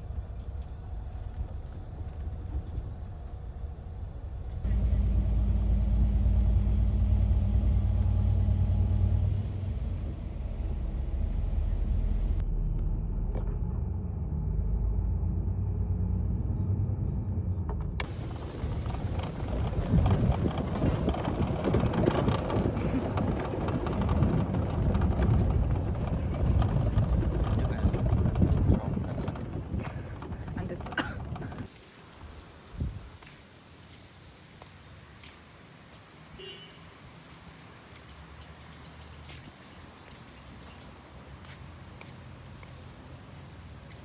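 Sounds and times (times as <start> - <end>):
vehicle engine droning: 0.0 - 31.7.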